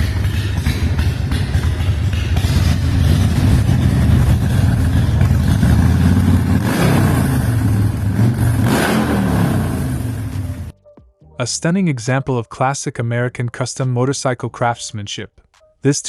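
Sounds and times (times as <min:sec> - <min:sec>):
motorcycle engine revving: 0:00.0 - 0:10.7.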